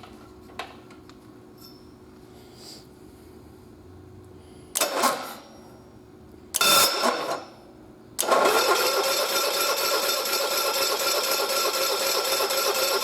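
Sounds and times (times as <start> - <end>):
engine starter cranking: 8.2 - 13.0.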